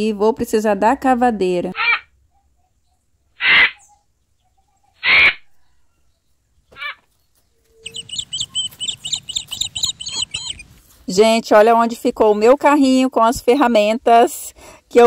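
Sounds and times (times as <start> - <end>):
birds calling harshly: 1.8 - 5.8, 6.6 - 10.9
high repeated bird chirps: 7.7 - 10.8.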